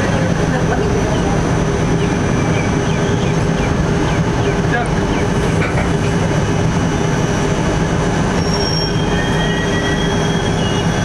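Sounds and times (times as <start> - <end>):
train wheels rumbling on rails: 0.0 - 11.0
high squeals from train running gear: 8.3 - 11.0.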